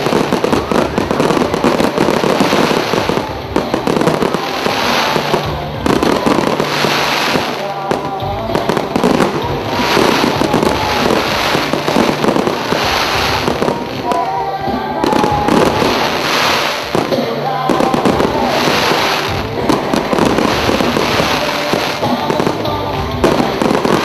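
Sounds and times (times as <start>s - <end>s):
fireworks banging and crackling: 0.0s - 24.0s.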